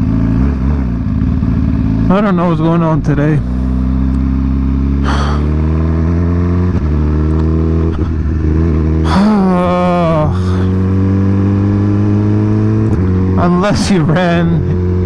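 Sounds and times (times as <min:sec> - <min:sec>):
motorcycle engine idling: 0:01.0 - 0:05.6.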